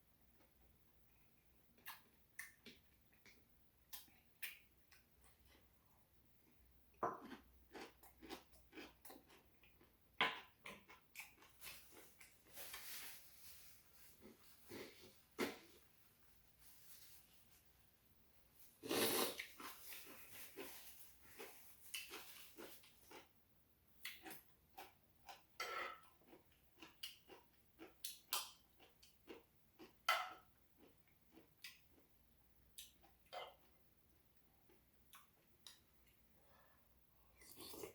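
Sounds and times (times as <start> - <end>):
wet chewing and mouth clicks: 7.1 - 12.4, 19.0 - 23.3, 24.0 - 32.1.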